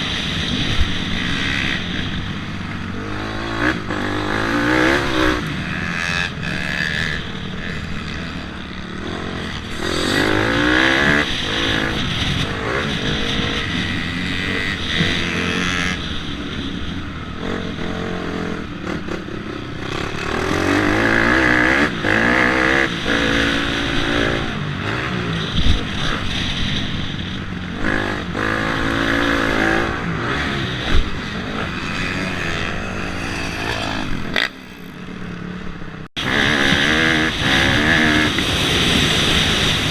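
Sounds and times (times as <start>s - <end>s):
dirt bike engine revving: 0.0s - 39.9s
wind rush: 36.2s - 39.9s.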